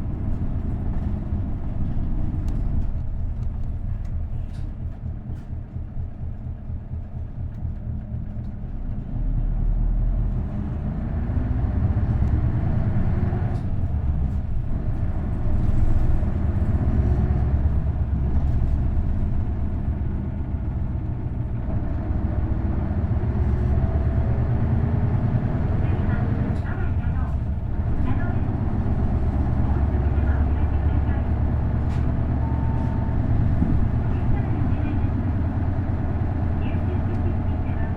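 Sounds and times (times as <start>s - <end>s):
bus diesel engine accelerating: 0.0s - 37.9s.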